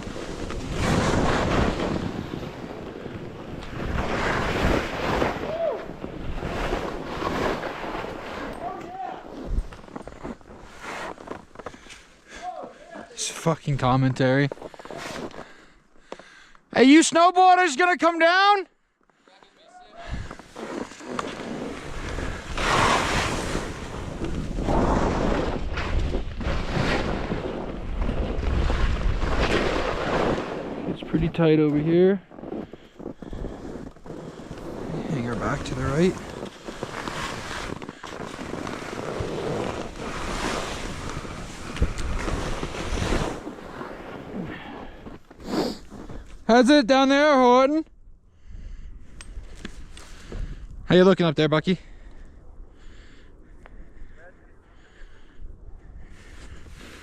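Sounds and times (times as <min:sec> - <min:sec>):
edges scraping on snow: 0:00.0 - 0:12.1, 0:14.2 - 0:15.4, 0:20.2 - 0:46.4
hiss of sliding on snow: 0:20.3 - 0:25.4, 0:33.5 - 0:46.2.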